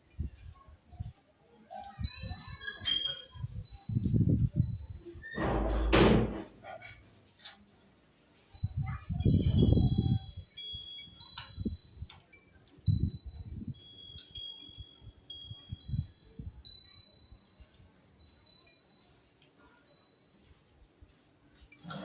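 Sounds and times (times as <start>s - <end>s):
wind chime ringing: 1.8s - 5.2s, 8.5s - 22.0s.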